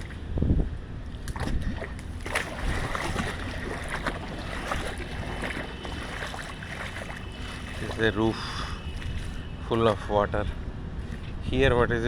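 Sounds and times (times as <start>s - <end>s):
wind rumble on microphone: 0.0s - 12.0s
water splashing on flooded roof: 1.2s - 10.1s.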